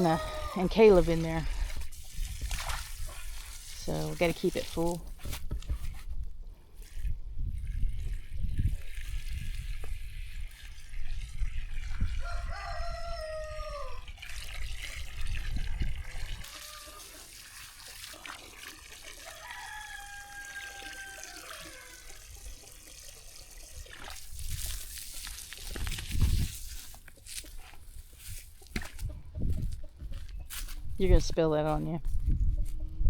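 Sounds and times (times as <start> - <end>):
rooster crowing: 12.2 - 14.1, 16.5 - 17.1, 19.2 - 22.2
water trickling: 13.6 - 26.8.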